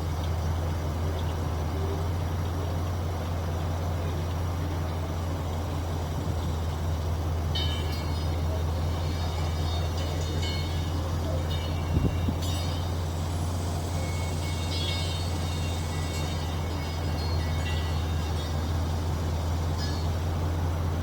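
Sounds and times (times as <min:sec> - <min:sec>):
engine running steadily: 0:00.0 - 0:21.0
faint higher tones: 0:04.9 - 0:20.8.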